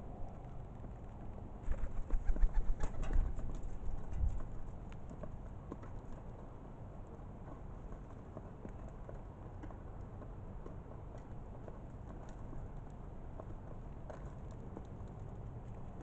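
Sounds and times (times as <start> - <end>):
birds pecking food: 7.8 - 16.0.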